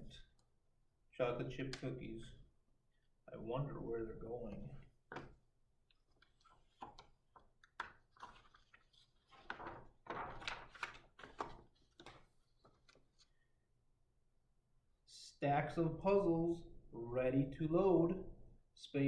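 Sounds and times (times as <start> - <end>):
book pages rustling and turning: 4.5 - 13.4.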